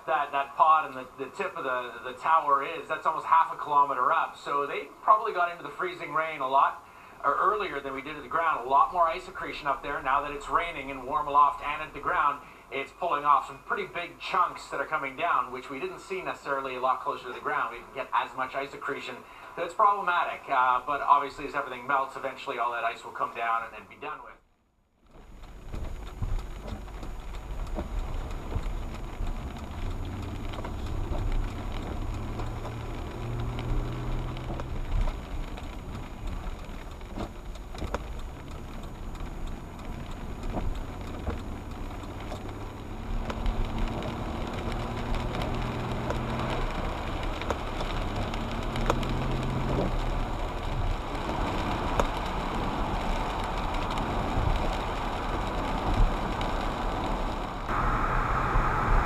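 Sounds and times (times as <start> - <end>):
tyre road noise: 0.0 - 24.3, 25.0 - 59.0
sharp ticks: 25.1 - 50.8
car engine hum: 25.1 - 59.0.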